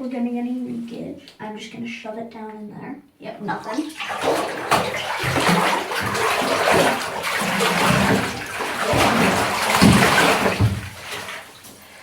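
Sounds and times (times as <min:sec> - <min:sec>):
water churning and splashing: 0:03.5 - 0:12.0.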